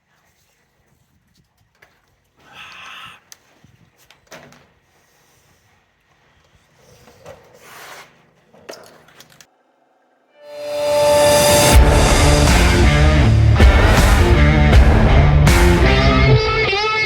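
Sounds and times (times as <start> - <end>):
rustling noise: 0.0 - 2.4.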